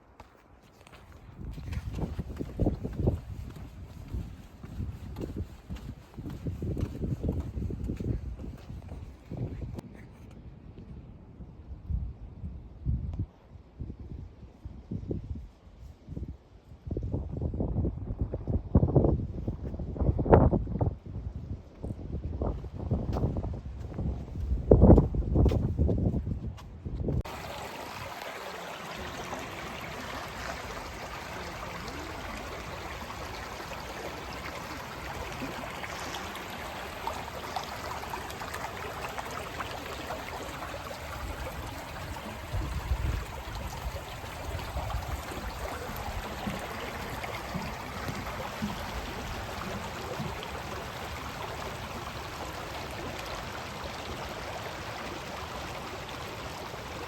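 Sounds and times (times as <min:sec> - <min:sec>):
stream water trickling: 0:00.8 - 0:09.5, 0:27.2 - 0:57.0.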